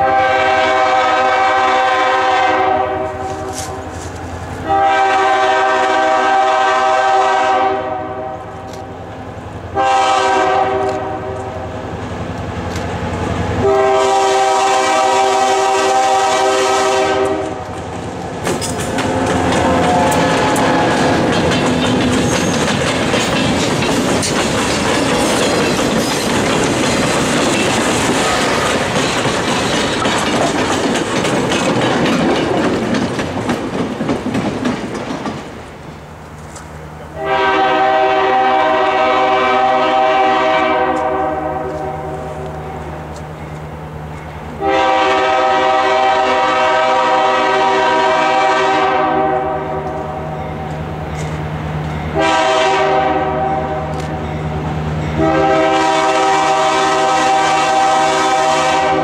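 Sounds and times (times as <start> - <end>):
train air horn blasts: 0.0 - 9.0, 9.7 - 11.8, 13.6 - 17.9, 18.9 - 21.3, 28.1 - 28.9, 37.1 - 42.8, 44.6 - 50.5, 52.1 - 54.2, 55.1 - 59.0
wheels clattering over rail joints: 17.9 - 35.7.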